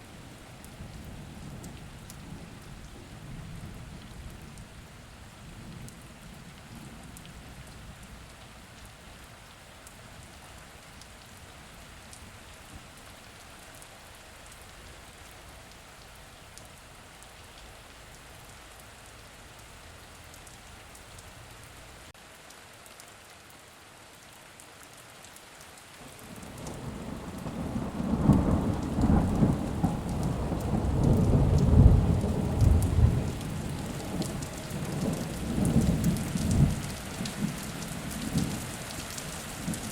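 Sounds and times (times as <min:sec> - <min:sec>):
steady rain: 0:00.0 - 0:39.9
low rumble of thunder: 0:00.2 - 0:09.4, 0:26.1 - 0:39.9.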